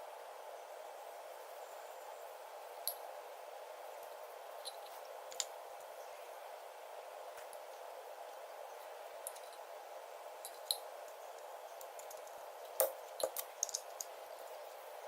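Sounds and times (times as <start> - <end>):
background hum: 0.0 - 15.0
small objects clicking: 10.5 - 14.2.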